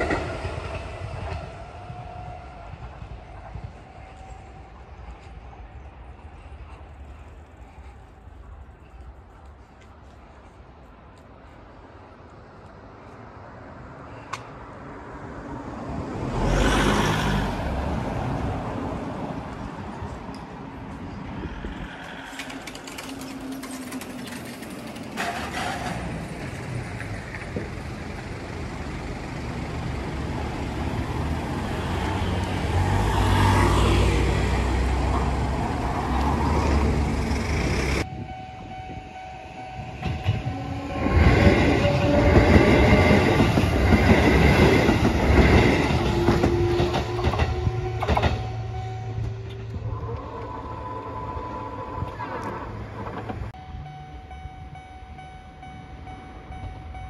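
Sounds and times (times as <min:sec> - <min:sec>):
train whining tones: 0:00.0 - 0:09.0, 0:15.9 - 0:27.7, 0:28.4 - 0:57.0
train wheels clattering: 0:21.7 - 0:27.8, 0:40.0 - 0:48.6.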